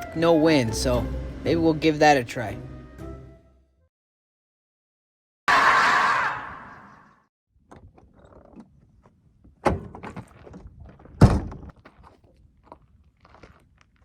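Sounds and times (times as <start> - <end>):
sharp thunks: 9.6 - 11.8.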